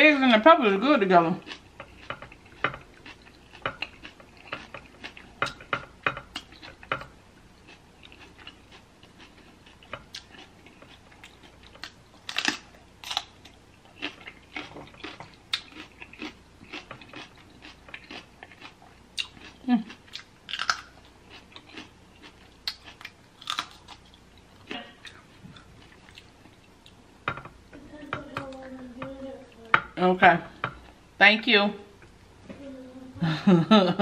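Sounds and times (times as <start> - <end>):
close chewing with mouth clicks: 1.4 - 27.0.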